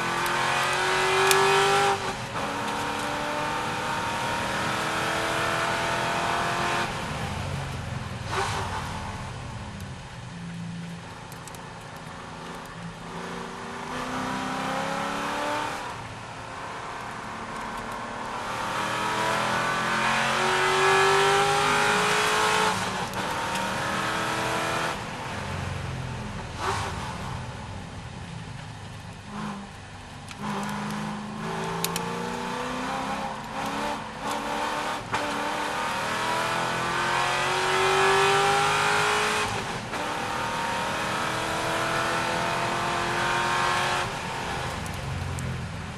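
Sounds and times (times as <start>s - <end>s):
racing car engine revving: 0.0s - 7.0s, 16.8s - 25.1s, 29.3s - 45.0s.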